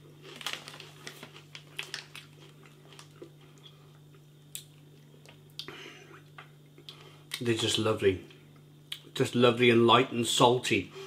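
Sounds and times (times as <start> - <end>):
crunching pork rinds: 0.1 - 3.7.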